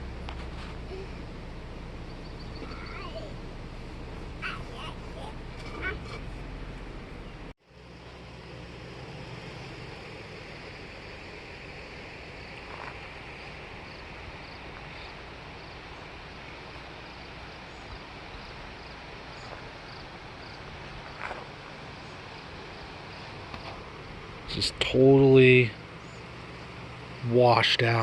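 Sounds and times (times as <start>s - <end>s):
outdoor background noise: 0.0s - 28.0s
faint high chirps: 2.0s - 3.4s.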